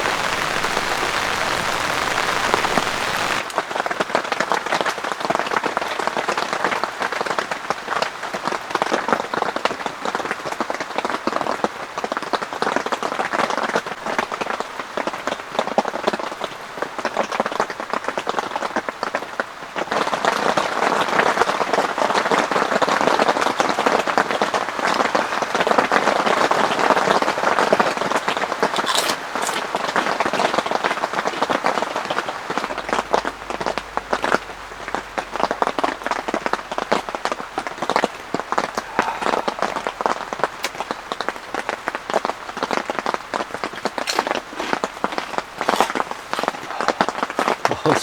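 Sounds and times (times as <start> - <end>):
heavy rain falling: 0.0 - 7.0, 28.5 - 48.0.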